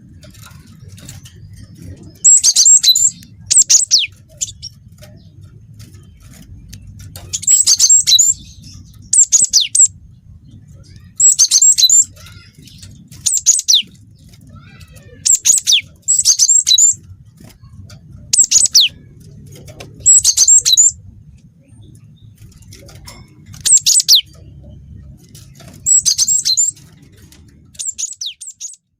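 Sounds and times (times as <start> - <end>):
bird singing rapid high phrases: 0.0 - 28.9
faint low hum: 0.0 - 28.9.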